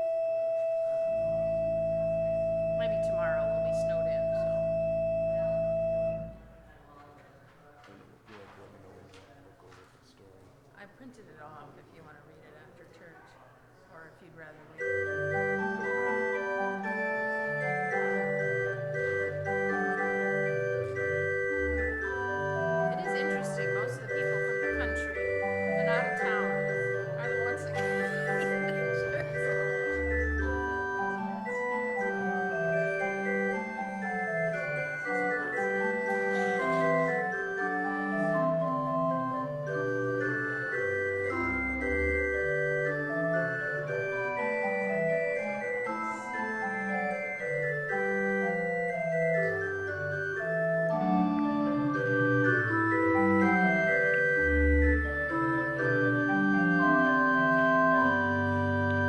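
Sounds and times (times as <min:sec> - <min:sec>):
deep organ bass pedal notes: 0:00.0 - 0:06.6, 0:14.8 - 0:59.0
organ playing sustained chords: 0:00.0 - 0:07.0, 0:14.8 - 0:59.0.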